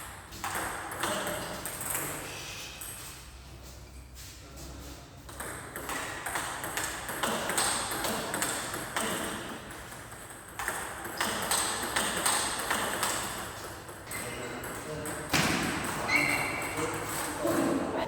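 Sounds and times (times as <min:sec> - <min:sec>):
racket hitting ball: 0:15.3 - 0:16.0.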